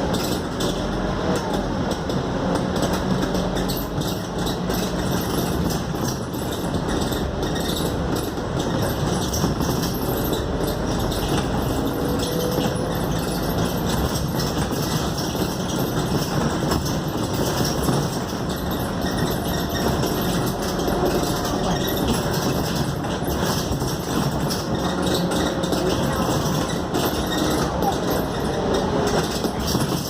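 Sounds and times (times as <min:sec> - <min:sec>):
bus engine and road noise: 0:00.0 - 0:30.0.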